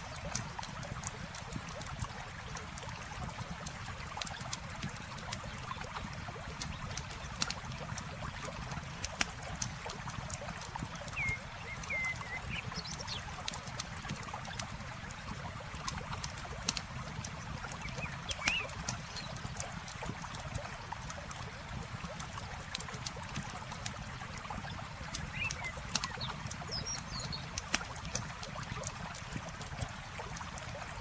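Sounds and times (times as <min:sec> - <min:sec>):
river water flowing: 0:00.0 - 0:31.0
bird chirping: 0:11.1 - 0:13.2, 0:17.8 - 0:18.8.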